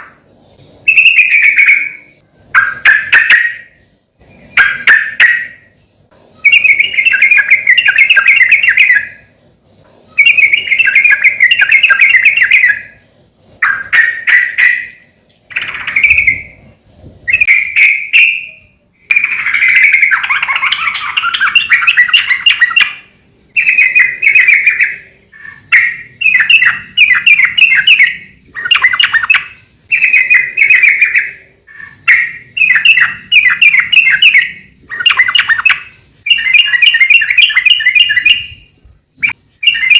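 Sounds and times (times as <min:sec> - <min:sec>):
bird bubbly chattering song: 0:00.0 - 0:03.8, 0:06.4 - 0:09.3, 0:10.1 - 0:13.0, 0:13.6 - 0:16.7, 0:17.3 - 0:39.9.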